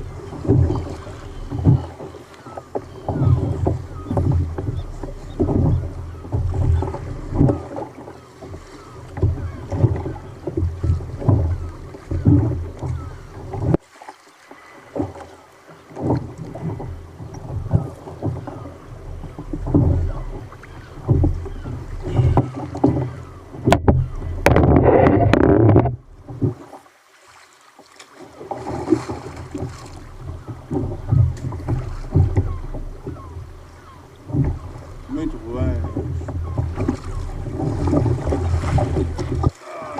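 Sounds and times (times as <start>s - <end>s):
rush of water: 0.0s - 39.9s
water slapping against kayak hull: 0.0s - 39.9s.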